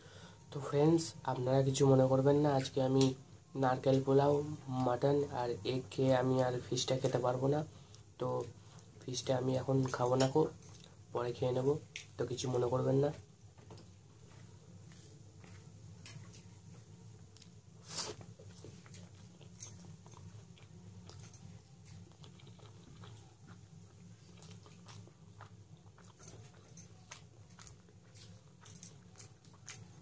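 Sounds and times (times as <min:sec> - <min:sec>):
steady low hum: 0:00.0 - 0:30.0
person chewing food: 0:13.6 - 0:30.0.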